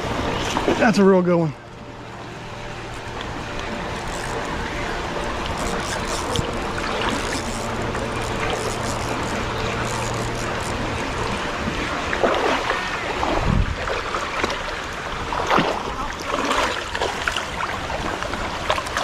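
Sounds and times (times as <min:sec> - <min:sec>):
creek water running: 0:00.0 - 0:19.0
low steady hum: 0:00.0 - 0:19.0
water splashing: 0:00.0 - 0:19.0.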